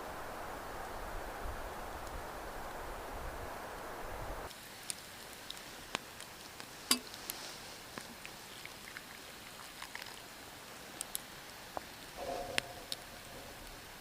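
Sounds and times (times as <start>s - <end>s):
faint hiss: 0.0s - 14.0s
campfire crackling and popping: 4.4s - 14.0s.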